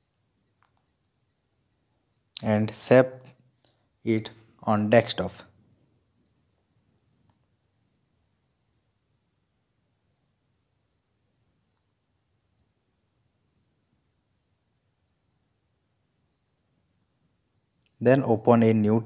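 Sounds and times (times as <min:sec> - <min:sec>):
high-pitched hiss: 0:00.0 - 0:19.0.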